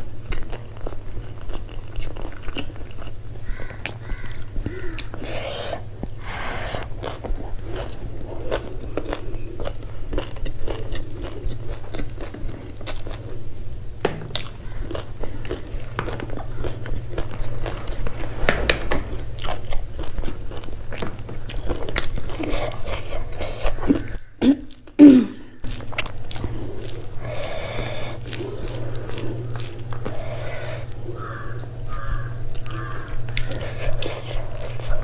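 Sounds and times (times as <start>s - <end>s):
chewing and crunching food: 0.0s - 35.0s
steady low hum: 0.0s - 35.0s.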